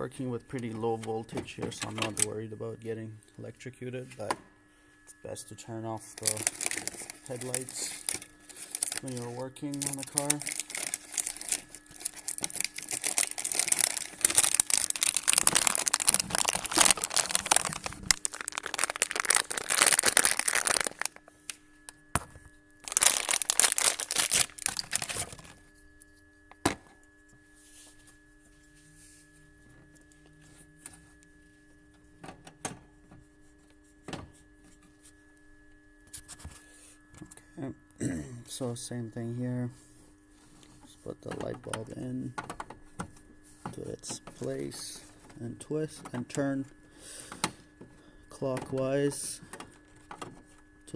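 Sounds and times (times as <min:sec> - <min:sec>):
steady low hum: 0:00.0 - 0:50.9
plastic crinkling and rustling: 0:06.2 - 0:21.3, 0:22.8 - 0:25.6.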